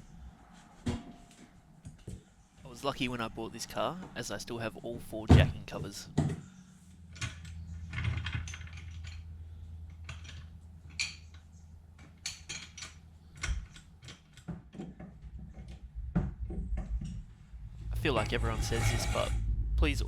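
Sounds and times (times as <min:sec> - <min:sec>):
steady low hum: 0:00.0 - 0:14.0, 0:15.0 - 0:20.0
metal tools clicking and rattling: 0:07.1 - 0:09.3, 0:09.9 - 0:15.0.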